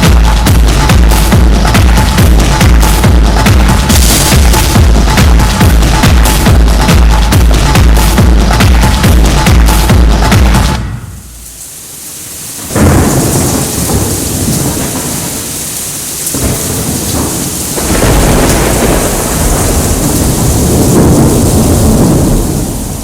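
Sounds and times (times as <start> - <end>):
music: 0.0 - 11.6
steady rain: 0.0 - 23.0
thunder rumbling: 0.0 - 23.0.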